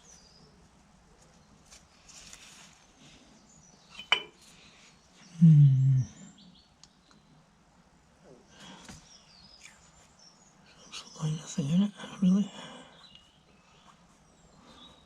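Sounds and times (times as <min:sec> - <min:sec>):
man humming low: 0:05.4 - 0:06.2.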